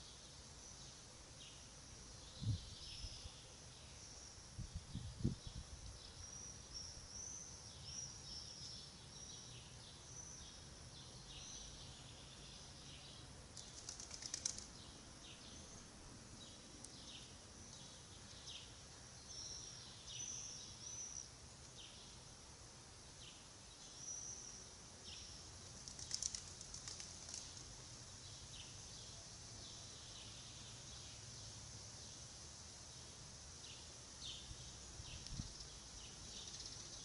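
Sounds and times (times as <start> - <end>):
small birds chirping: 0.0 - 22.4, 23.0 - 37.0
rapid rattling call: 13.6 - 14.8, 25.6 - 27.8.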